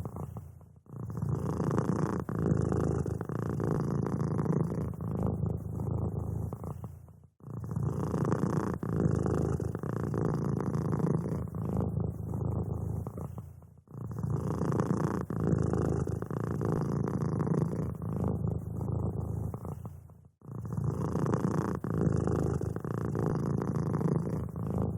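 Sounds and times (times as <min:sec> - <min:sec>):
cat purring: 0:00.0 - 0:24.9.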